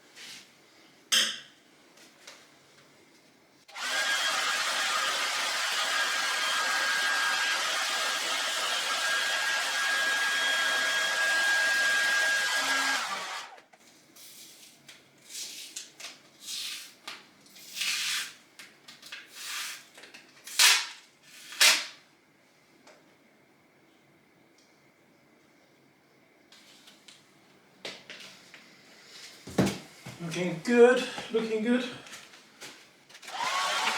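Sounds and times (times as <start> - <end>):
heat gun blowing with whine: 3.7 - 13.6, 33.3 - 33.9.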